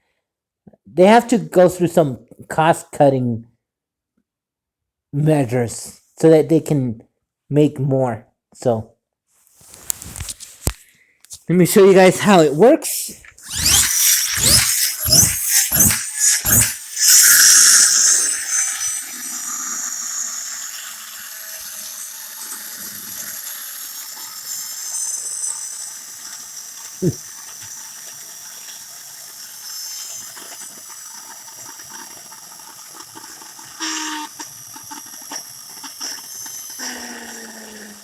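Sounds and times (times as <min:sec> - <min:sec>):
toy friction motor whirring: 0:12.9 - 0:38.0.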